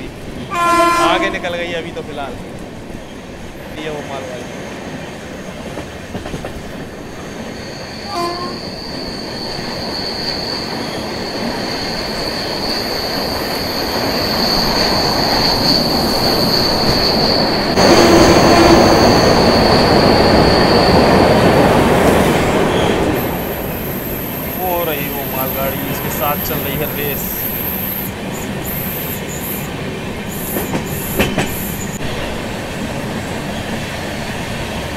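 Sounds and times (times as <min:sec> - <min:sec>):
train wheel and track rumble: 0:00.0 - 0:34.9
high-pitched wheel squeal: 0:07.1 - 0:21.6.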